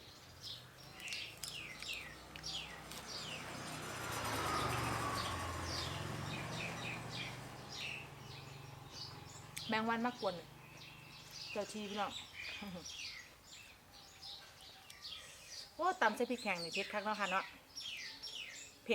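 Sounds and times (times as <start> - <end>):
small birds chirping: 0.0 - 18.9.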